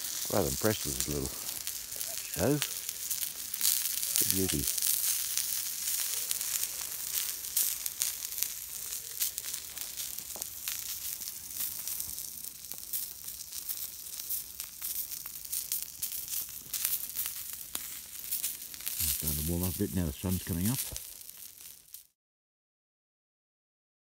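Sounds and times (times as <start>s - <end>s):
food sizzling on a hotplate: 0.0s - 22.2s.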